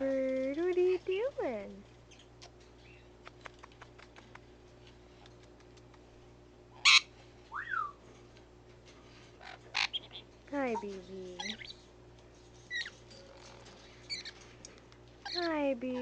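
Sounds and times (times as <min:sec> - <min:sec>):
parrot squawk: 0:06.8 - 0:07.9, 0:09.4 - 0:10.3
parrot whistle: 0:06.8 - 0:08.0.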